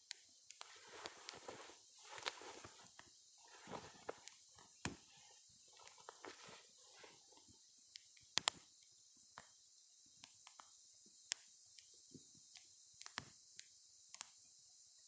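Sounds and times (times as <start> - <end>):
faint steady hiss: 0.0 - 15.0
wood fire crackling: 0.5 - 7.6.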